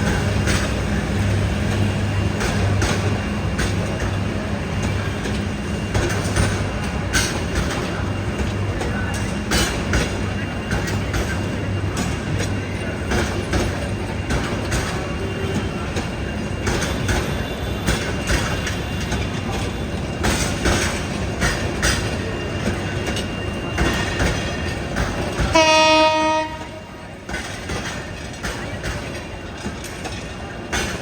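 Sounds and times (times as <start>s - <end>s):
train rumble and wheel clatter: 0.0s - 31.0s
train horn blast: 25.5s - 27.0s.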